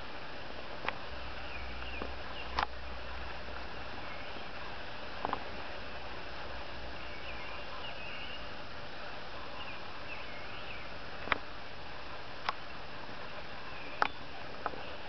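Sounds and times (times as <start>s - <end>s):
faint steady hiss: 0.0s - 15.0s
faint wavering bird calls: 1.2s - 4.9s, 6.2s - 11.1s, 12.0s - 15.0s.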